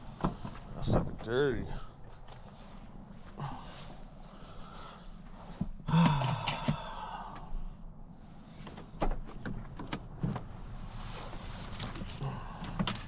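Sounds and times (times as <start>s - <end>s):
knocks and clunks of gear: 0.1s - 1.4s, 5.6s - 7.0s, 8.6s - 10.6s, 11.5s - 13.0s.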